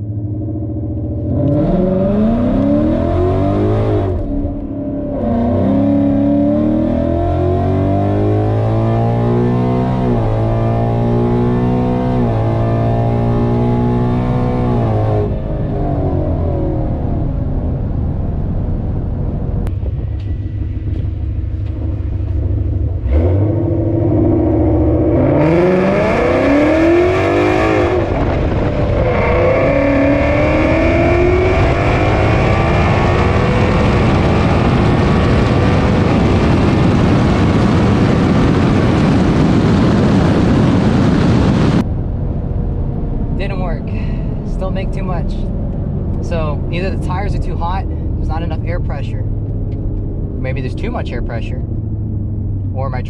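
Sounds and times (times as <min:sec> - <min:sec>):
car engine revving hard: 0:01.2 - 0:16.5, 0:23.0 - 0:41.8.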